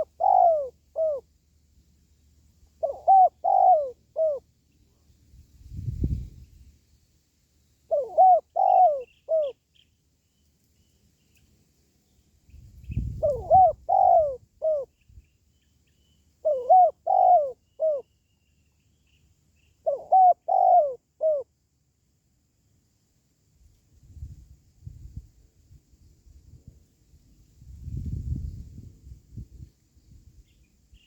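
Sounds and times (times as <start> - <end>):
dove cooing: 0.0 - 1.3, 2.8 - 4.5, 7.9 - 9.6, 13.1 - 14.9, 16.4 - 18.1, 19.8 - 21.5.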